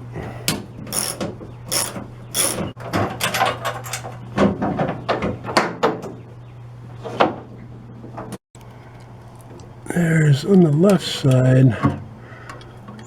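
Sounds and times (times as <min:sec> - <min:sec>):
mechanical clicks and rattles: 0:00.9 - 0:04.2.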